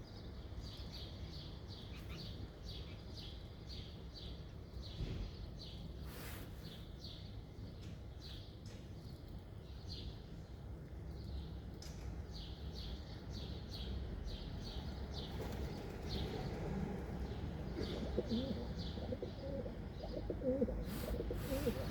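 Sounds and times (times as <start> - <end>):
small birds chirping: 0.0 - 21.9
constant low rumble: 14.3 - 21.9
pigeons cooing: 16.2 - 21.9.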